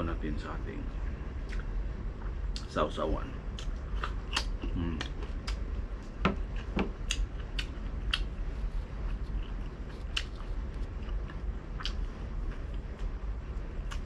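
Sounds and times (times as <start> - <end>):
person chewing: 1.4 - 2.7, 3.5 - 14.0.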